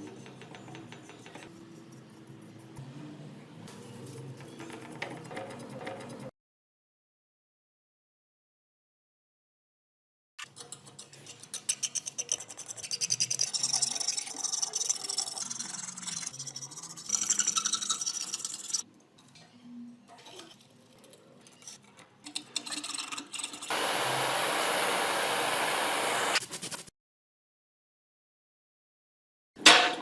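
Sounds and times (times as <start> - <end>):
steady hiss: 23.7 - 26.4.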